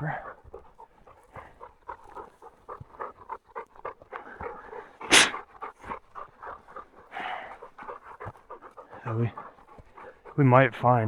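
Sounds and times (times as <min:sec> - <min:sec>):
dog panting: 0:00.0 - 0:11.0
loud short rush of noise: 0:05.1 - 0:05.4.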